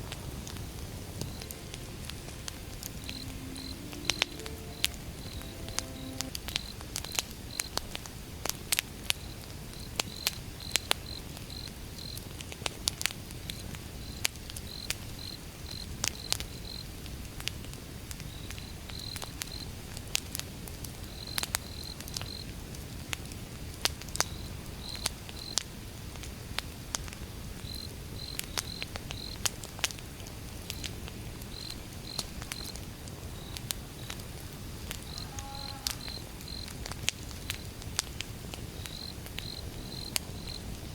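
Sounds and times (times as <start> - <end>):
crickets chirping: 0.2 - 6.7, 35.1 - 36.7, 38.8 - 40.9
firewood crackling: 36.8 - 40.9.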